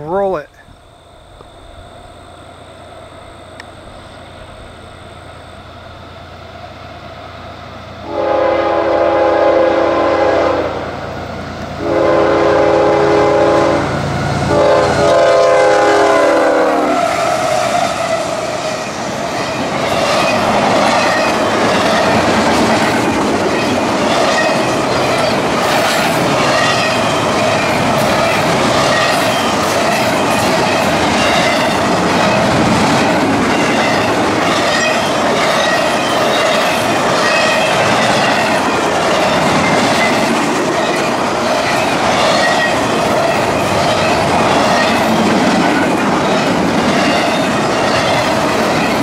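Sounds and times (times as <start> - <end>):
diesel locomotive rumble: 0.0 - 49.0
train horn blasts: 8.0 - 10.9, 11.8 - 17.2
train wheels clattering on rails: 18.2 - 49.0.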